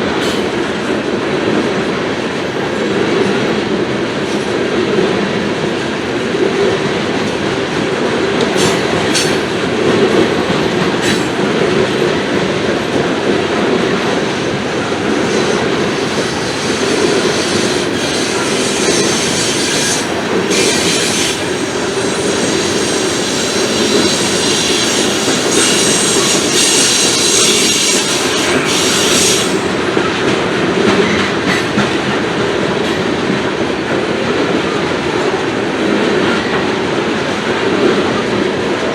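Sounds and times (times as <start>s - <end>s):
train wheels rumbling on track: 0.0s - 38.9s
wheels clicking over rail joints: 6.4s - 32.2s
high-pitched wheel squeal: 13.7s - 29.6s.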